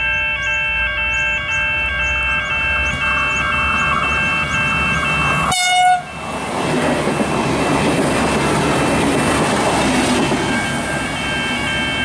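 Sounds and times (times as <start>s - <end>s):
loud high-pitched tone: 0.0s - 6.2s, 10.4s - 12.0s
train passing close by: 0.0s - 12.0s.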